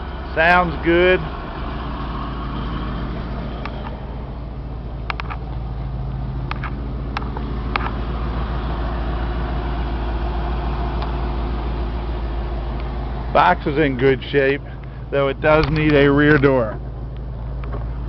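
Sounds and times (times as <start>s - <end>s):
truck engine idling: 0.0s - 18.0s
sharp clicks: 3.6s - 4.0s, 5.0s - 5.6s.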